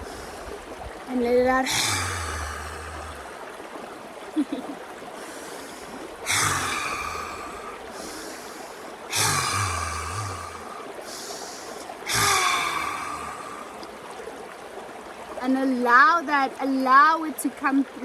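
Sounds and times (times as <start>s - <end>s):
forceful breathy exhalations: 1.6s - 3.5s, 5.2s - 13.8s
quiet inhales through nose: 5.2s - 13.8s.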